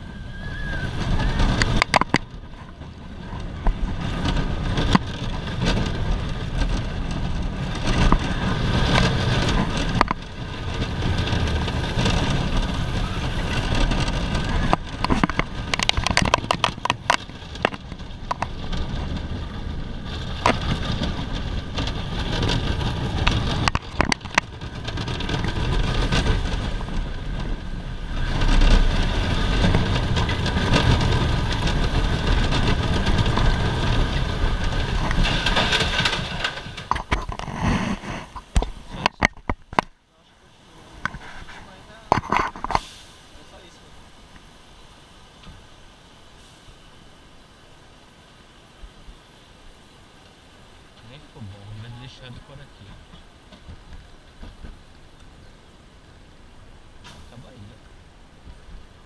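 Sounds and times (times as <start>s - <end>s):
sled wheels rumbling on rail: 0.0s - 59.0s
sharp clacks and knocks: 1.0s - 27.6s, 28.2s - 40.0s.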